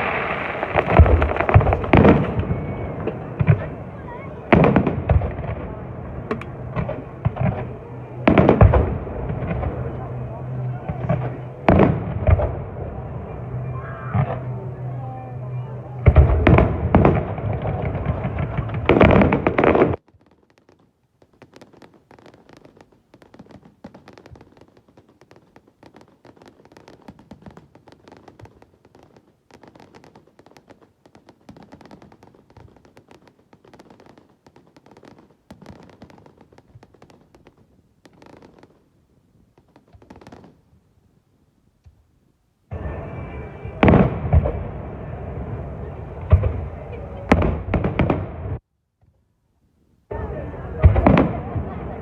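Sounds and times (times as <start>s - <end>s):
faint crackling: 0.0s - 40.9s
fireworks bangs: 0.0s - 41.2s, 42.7s - 48.6s, 50.1s - 52.0s.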